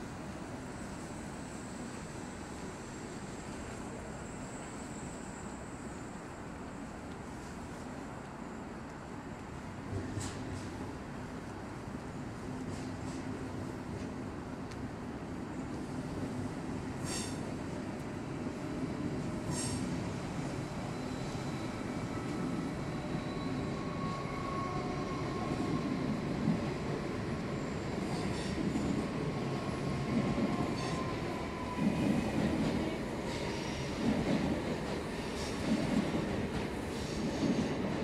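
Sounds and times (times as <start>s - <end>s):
train wheels rumbling and knocking: 28.0s - 38.0s.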